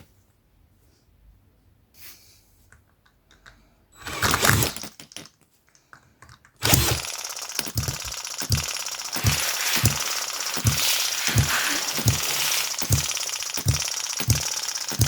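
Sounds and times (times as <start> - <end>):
clicks: 2.7 - 15.0
model engine running rattle: 6.6 - 15.0
model engine starting burst: 6.6 - 15.0.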